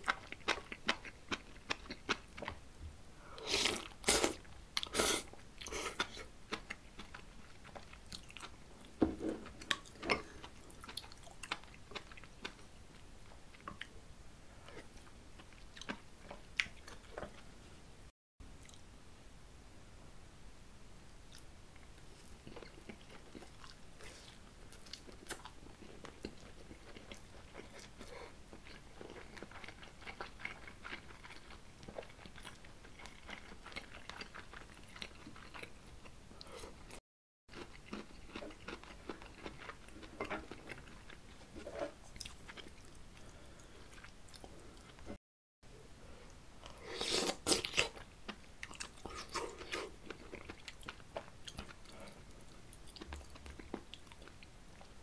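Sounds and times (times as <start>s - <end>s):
chewing and biting food: 9.4s - 13.9s, 22.3s - 35.8s, 37.5s - 43.3s, 47.0s - 55.0s.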